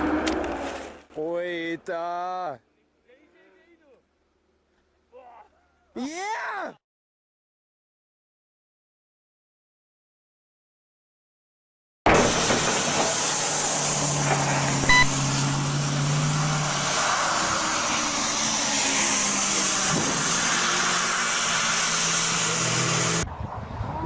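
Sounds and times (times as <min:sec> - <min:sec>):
car driving in traffic: 0:12.3 - 0:24.0
short high beep: 0:14.9 - 0:15.2.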